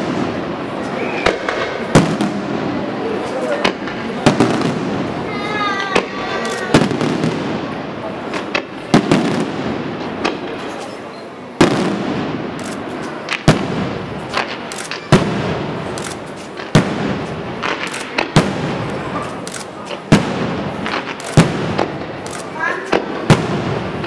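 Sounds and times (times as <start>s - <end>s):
dense crackling pops: 11.8s - 24.0s.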